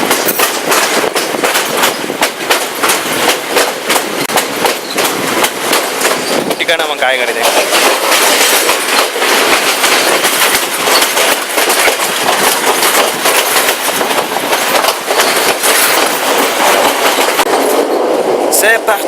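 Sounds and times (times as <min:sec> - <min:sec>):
train wheels rattling on rails: 0:00.0 - 0:19.0
sharp clacks of wheels: 0:07.5 - 0:17.8.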